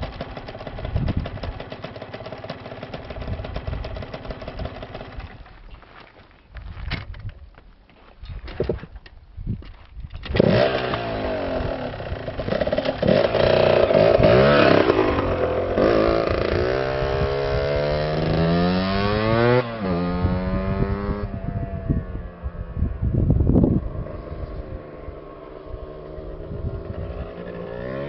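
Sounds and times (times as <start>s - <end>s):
two-stroke engine revving: 0.0s - 5.3s, 10.3s - 21.4s, 23.7s - 28.0s.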